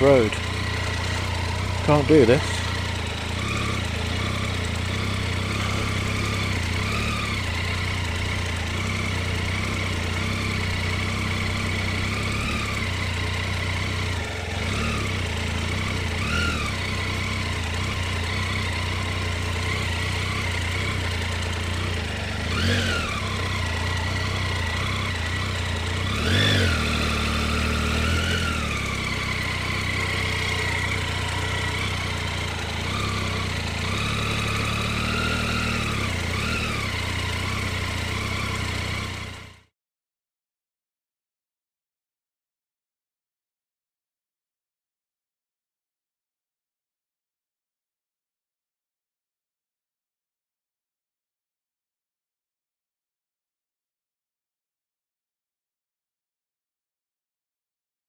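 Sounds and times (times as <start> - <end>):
motorcycle engine running: 0.0 - 39.7.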